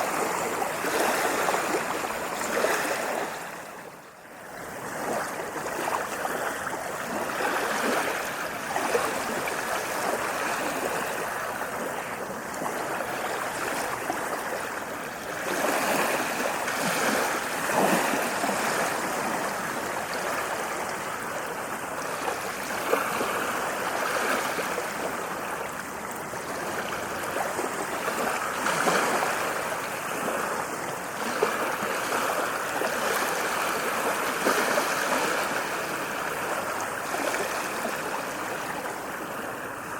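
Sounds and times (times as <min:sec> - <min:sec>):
ocean waves on a beach: 0:00.0 - 0:39.9.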